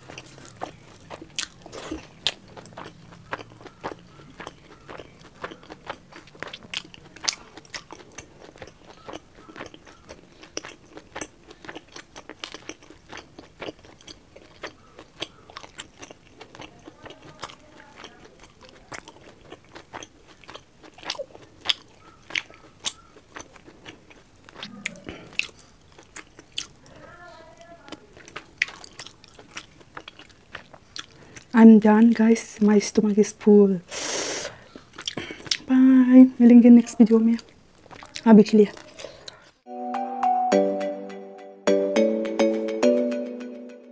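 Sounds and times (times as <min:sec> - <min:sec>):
wet mouth chewing: 0:00.0 - 0:27.0, 0:27.9 - 0:31.5, 0:33.9 - 0:35.7, 0:37.4 - 0:39.6.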